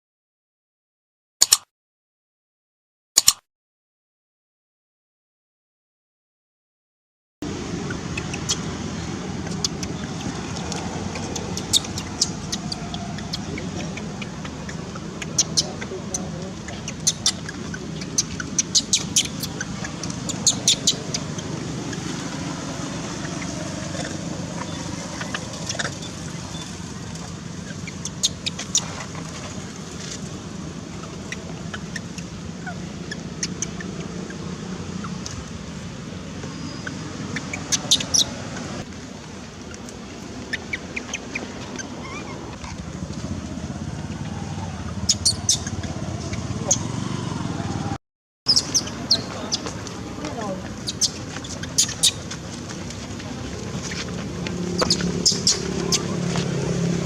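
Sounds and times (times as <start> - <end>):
baby monkey high-pitched squeaks: 7.8 - 8.8, 9.4 - 29.0, 31.0 - 35.5, 36.3 - 38.8, 40.4 - 42.9, 44.4 - 47.1, 48.5 - 52.5, 54.7 - 56.6
short high-pitched animal calls: 40.6 - 42.8.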